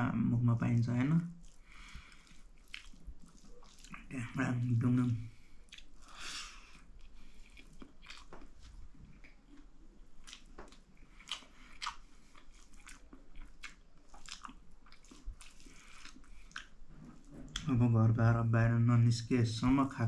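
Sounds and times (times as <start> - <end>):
person chewing food: 1.4 - 4.1, 5.3 - 17.7.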